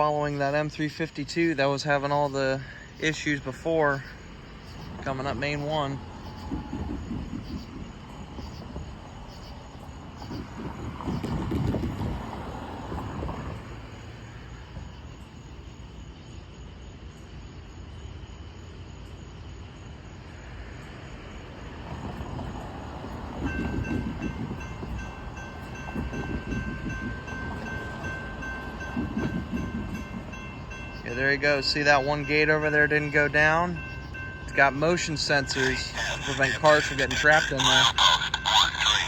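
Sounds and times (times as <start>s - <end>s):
freight train rumbling: 0.0s - 15.9s, 18.6s - 39.0s
crossing warning bell ringing: 22.8s - 39.0s.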